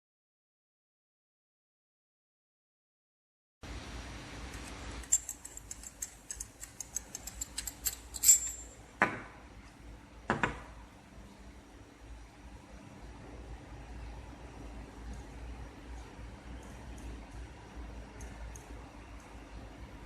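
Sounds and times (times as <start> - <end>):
small metal parts clinking: 5.0 - 8.8.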